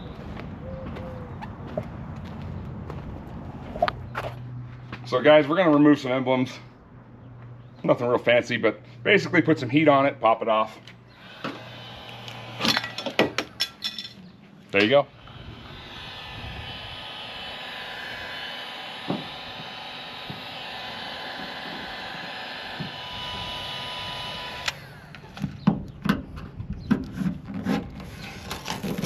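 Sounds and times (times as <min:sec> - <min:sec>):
heat gun blowing: 0:11.1 - 0:13.5, 0:15.0 - 0:25.4.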